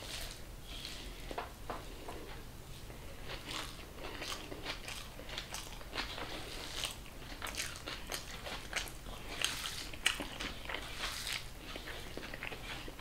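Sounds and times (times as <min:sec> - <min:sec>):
person chewing crunchy food: 0:03.0 - 0:13.0.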